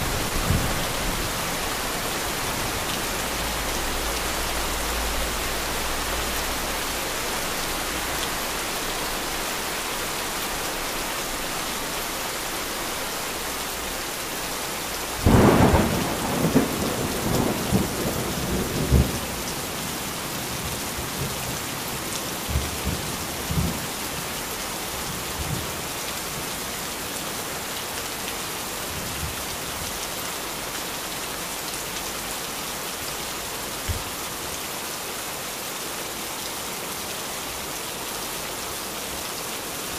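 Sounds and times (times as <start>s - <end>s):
heavy rain hissing: 0.0s - 39.9s
thunderclap rumbling: 15.3s - 19.3s.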